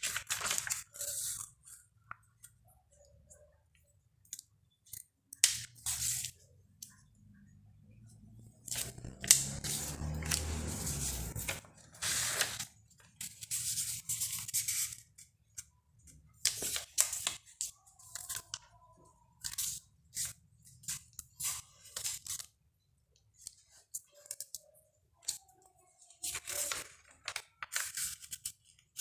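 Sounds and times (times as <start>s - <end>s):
paper rustling and crackling: 0.0s - 1.5s, 8.6s - 15.0s, 26.2s - 29.0s.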